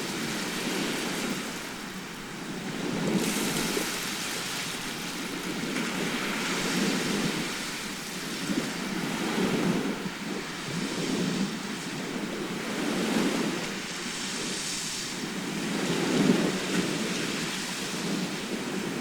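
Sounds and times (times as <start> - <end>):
waves breaking: 0.0 - 19.0.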